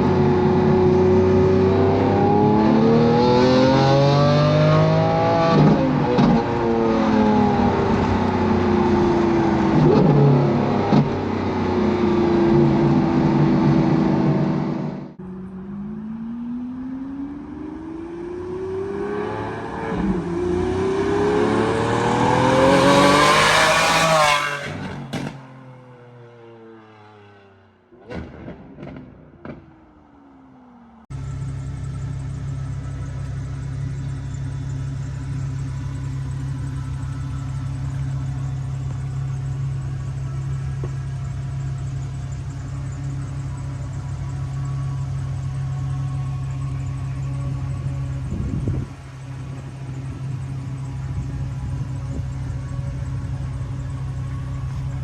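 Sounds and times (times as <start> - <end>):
car engine accelerating: 0.0 - 55.0
car engine idling: 4.7 - 18.8, 29.3 - 55.0
exhaust pops and crackles: 10.8 - 11.4, 28.0 - 30.1, 31.1 - 55.0.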